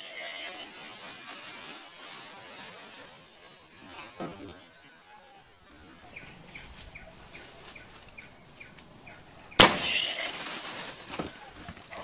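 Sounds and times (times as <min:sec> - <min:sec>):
bird chirping: 0:05.3 - 0:10.3
loud bang: 0:09.6 - 0:10.2.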